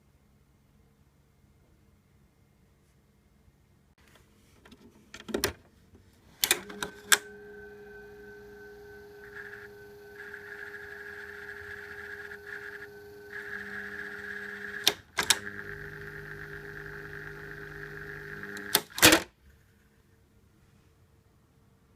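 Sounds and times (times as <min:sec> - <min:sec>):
ventilating fan humming: 0:05.9 - 0:18.9.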